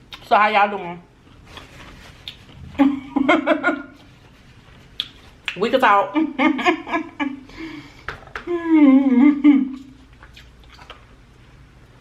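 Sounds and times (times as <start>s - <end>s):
chewing mouth sounds: 1.6s - 2.8s, 4.8s - 5.6s, 10.0s - 11.2s
woman humming: 8.5s - 9.9s.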